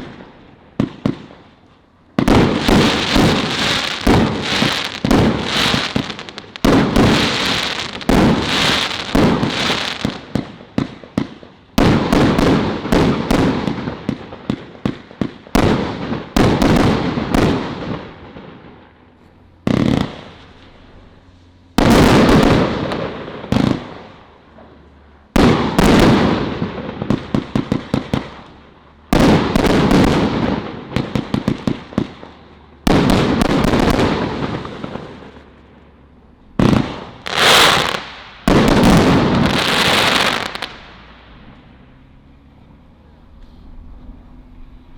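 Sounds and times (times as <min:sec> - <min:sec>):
firework pops and crackle: 0:00.0 - 0:20.9, 0:25.4 - 0:28.6, 0:36.6 - 0:41.8
firework shots bursting: 0:00.0 - 0:42.2.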